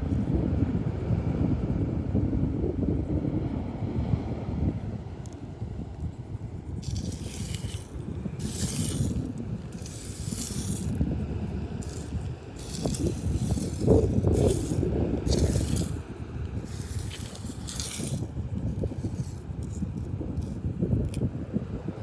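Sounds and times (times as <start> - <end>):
wind rumble on microphone: 0.0 - 22.0
seashells rattling and scraping: 6.8 - 21.3.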